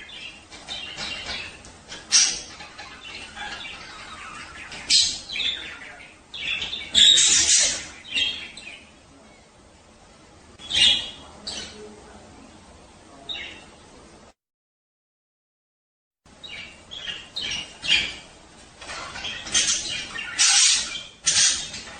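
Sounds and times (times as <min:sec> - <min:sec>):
budgerigars chirping and warbling: 0:00.0 - 0:09.5, 0:10.6 - 0:12.1, 0:13.2 - 0:13.8, 0:16.3 - 0:21.9.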